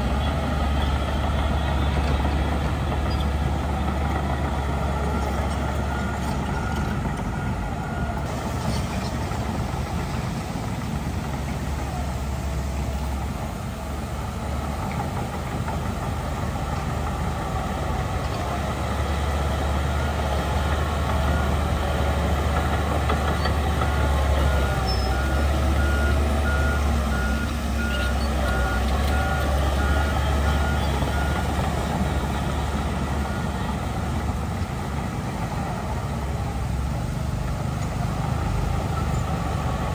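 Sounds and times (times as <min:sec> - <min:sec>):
heavy diesel machinery rumbling: 0:00.0 - 0:39.9
reversing alarm beeping: 0:02.9 - 0:08.3, 0:23.0 - 0:34.1.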